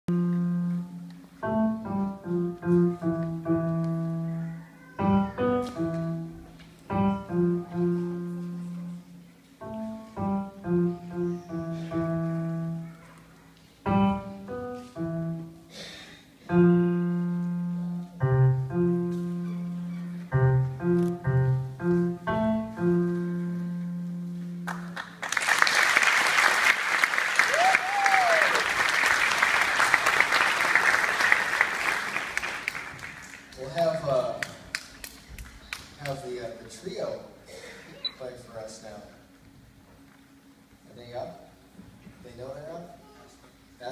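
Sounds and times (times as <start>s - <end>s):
piano notes and chords: 0.1s - 13.1s, 13.8s - 25.4s.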